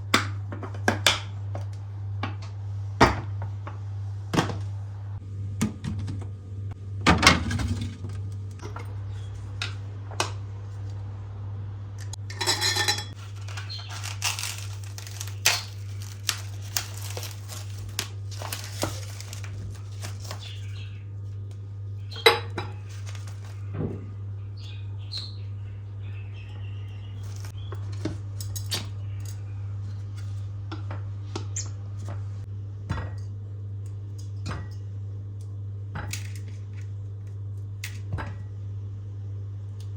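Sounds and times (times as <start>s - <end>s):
steady low hum: 0.0s - 39.9s
kitchenware clinking and knocking: 12.2s - 13.2s
rustling: 13.2s - 20.6s.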